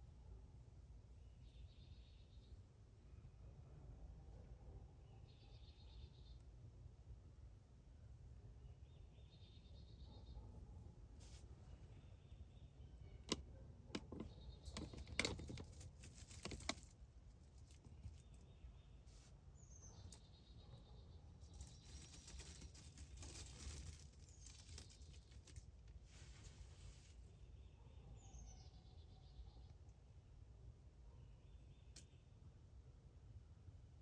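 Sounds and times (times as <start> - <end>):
sharp clicks and crunches: 13.2 - 18.4, 21.4 - 26.0.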